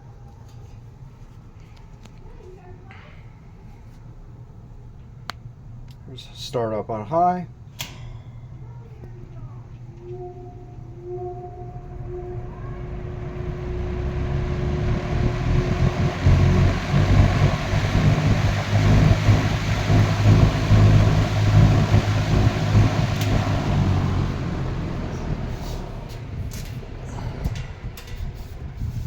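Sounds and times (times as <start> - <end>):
low motor hum: 9.0 - 29.0
box fan air rushing: 11.2 - 29.0.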